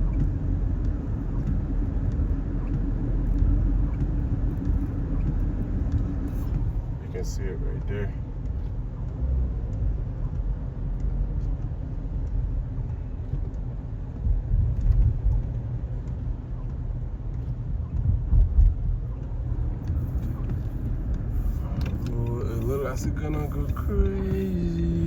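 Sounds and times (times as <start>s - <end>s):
road rumble inside moving car: 0.0s - 25.0s.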